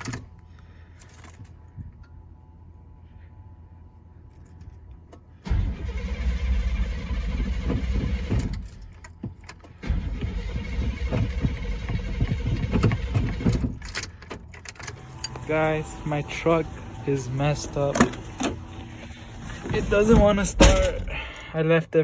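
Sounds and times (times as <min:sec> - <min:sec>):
starter cranking engine: 0:05.4 - 0:21.6.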